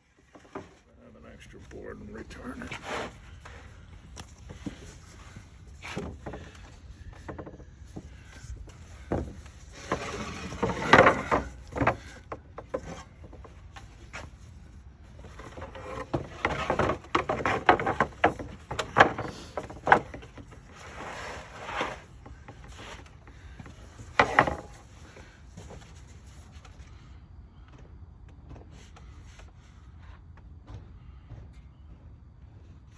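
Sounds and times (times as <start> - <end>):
boards sliding and rubbing: 0.0 - 0.9, 2.3 - 27.2
boards knocking and clacking: 0.2 - 0.8, 4.4 - 14.2, 15.2 - 25.8.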